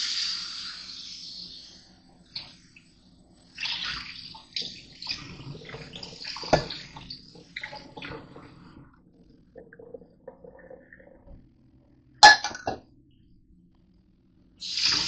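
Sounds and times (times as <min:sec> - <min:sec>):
tap water splashing in sink: 0:03.6 - 0:08.5.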